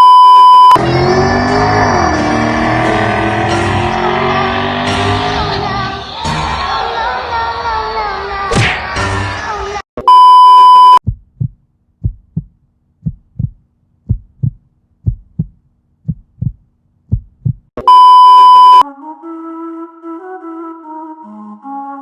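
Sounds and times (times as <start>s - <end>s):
loud steady beep tone: 0.0s - 0.8s, 10.0s - 11.0s, 17.8s - 18.8s
heartbeat thumping: 10.8s - 17.7s
flute music: 18.8s - 22.0s.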